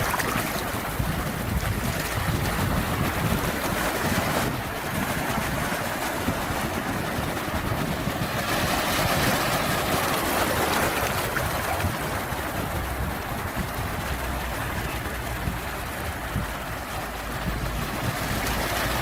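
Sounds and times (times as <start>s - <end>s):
sea waves washing in: 0.0s - 19.0s.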